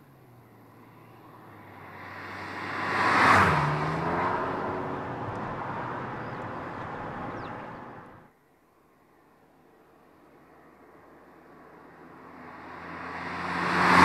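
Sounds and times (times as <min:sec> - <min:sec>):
car engine driving past: 0:00.8 - 0:08.1, 0:11.8 - 0:14.0.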